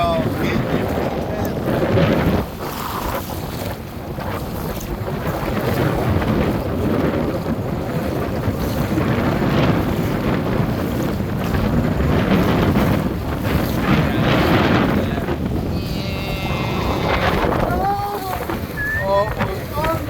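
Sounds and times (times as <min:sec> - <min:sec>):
waves and moving water: 0:00.0 - 0:20.0
wind buffeting microphone: 0:00.0 - 0:20.0.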